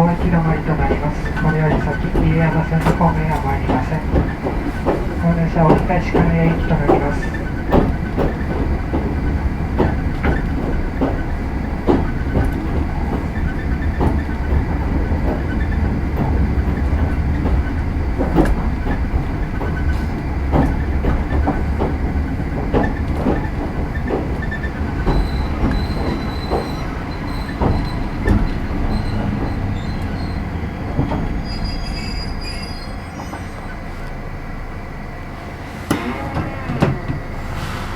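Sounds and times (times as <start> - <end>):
rail-joint clicks: 0.0 - 34.2, 35.9 - 37.9
train low rumble: 0.0 - 37.9
wheel and brake squeal: 24.4 - 34.2.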